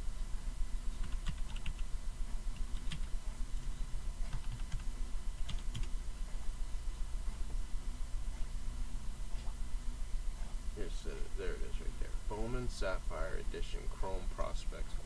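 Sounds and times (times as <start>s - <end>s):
low electrical hum: 0.0s - 15.0s
keyboard typing: 1.0s - 1.8s, 2.7s - 3.1s, 4.2s - 4.8s, 5.4s - 5.9s.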